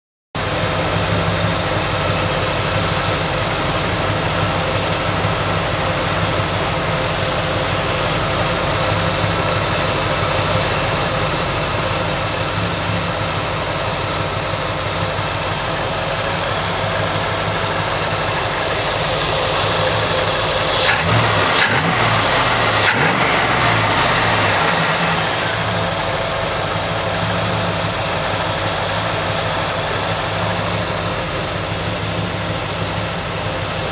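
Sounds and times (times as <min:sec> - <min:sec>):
car engine idling: 0:00.4 - 0:33.9
engine revving: 0:16.2 - 0:33.9.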